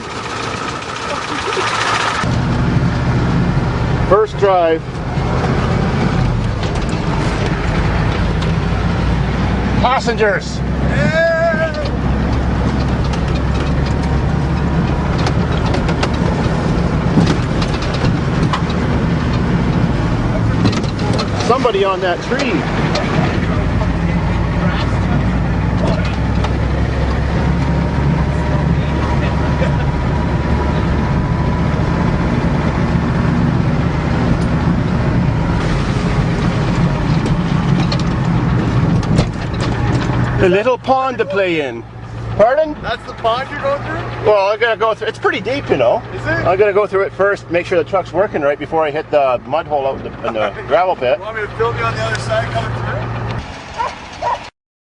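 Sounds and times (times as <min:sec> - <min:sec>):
truck engine running: 0:00.0 - 0:54.5
light clicks and rattles: 0:11.6 - 0:23.4.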